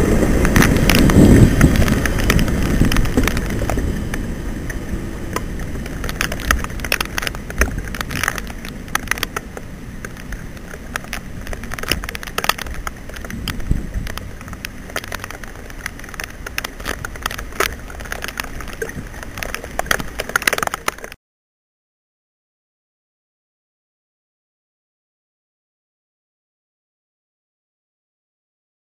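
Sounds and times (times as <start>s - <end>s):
freight train rumbling past: 0.0s - 5.8s
train wheels clicking and rattling: 0.0s - 21.2s.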